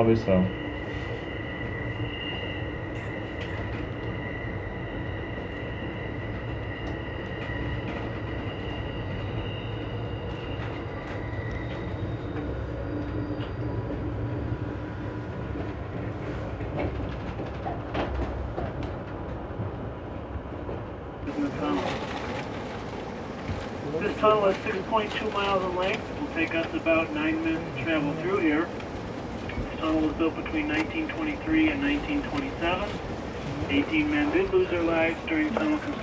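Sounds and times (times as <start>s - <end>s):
train wheels rumbling on rail: 0.0s - 36.0s
wheel flange squeal: 0.5s - 14.4s.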